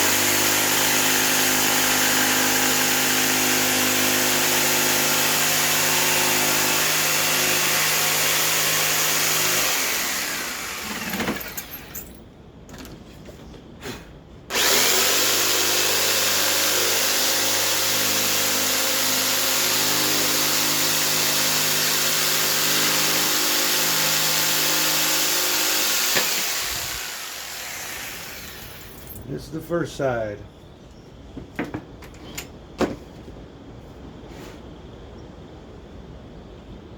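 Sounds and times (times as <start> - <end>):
power saw cutting wood: 0.0 - 11.9, 14.5 - 29.2.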